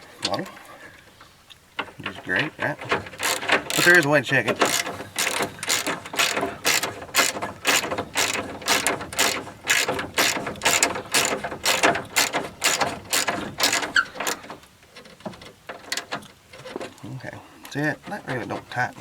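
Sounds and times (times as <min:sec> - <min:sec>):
ratchet wrench clicking: 0:03.0 - 0:14.6.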